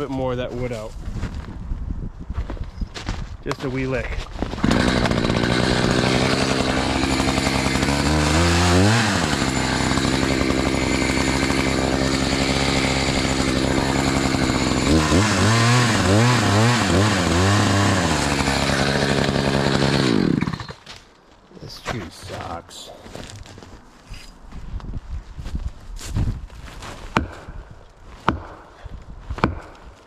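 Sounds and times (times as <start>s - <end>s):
chainsaw cutting wood: 4.5s - 21.0s, 27.1s - 27.6s, 28.2s - 28.8s, 29.4s - 30.0s.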